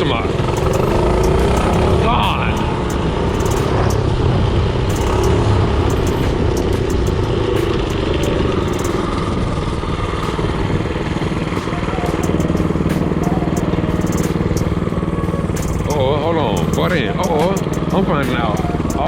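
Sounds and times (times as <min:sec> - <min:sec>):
short ticks and rattles: 0:00.5 - 0:04.2, 0:04.8 - 0:09.4.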